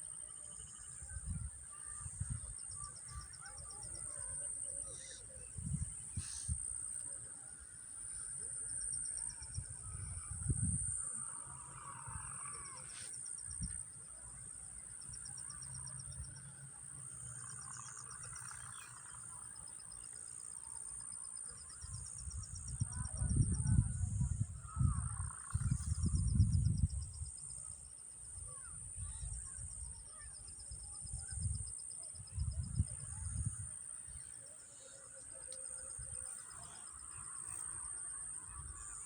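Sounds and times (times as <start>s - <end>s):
high insect-like whine: 14.7s - 27.6s.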